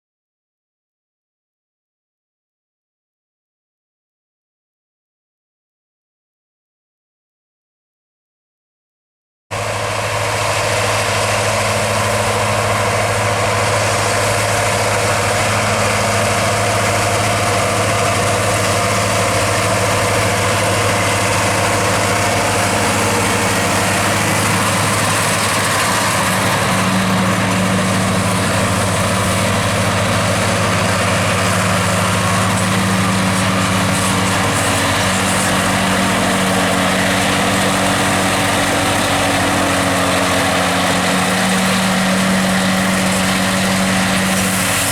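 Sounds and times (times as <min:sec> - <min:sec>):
mower rushing through grass: 0:09.5 - 0:44.9
tractor engine running under load: 0:09.5 - 0:44.9.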